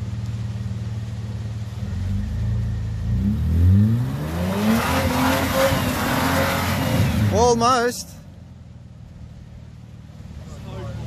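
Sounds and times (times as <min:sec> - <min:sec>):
engine revving under load: 0:01.8 - 0:07.7.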